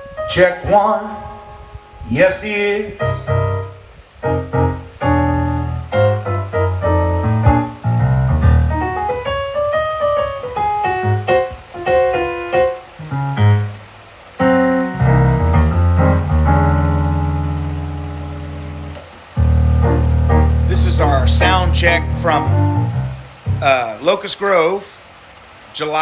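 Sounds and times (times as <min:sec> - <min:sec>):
gospel piano chords: 0:00.0 - 0:24.9
bass line: 0:03.1 - 0:09.4, 0:14.5 - 0:23.9.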